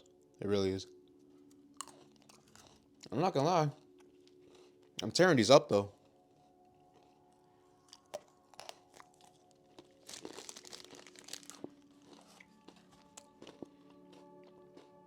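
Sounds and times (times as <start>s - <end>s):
quiet background music: 0.0s - 15.0s
snack wrapper crinkling: 1.8s - 3.1s, 7.8s - 15.0s.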